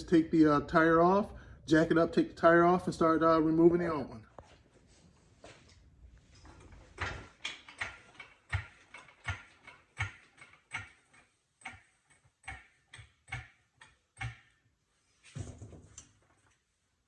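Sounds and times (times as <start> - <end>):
car jack clacking and thudding: 6.4 - 14.6.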